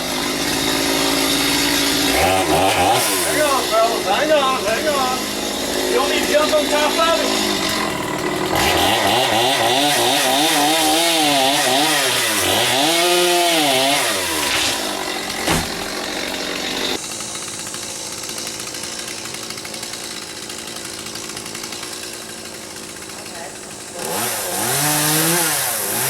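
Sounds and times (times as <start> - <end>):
chainsaw cutting wood: 0.0 - 26.0
sharp knock: 15.4 - 15.9.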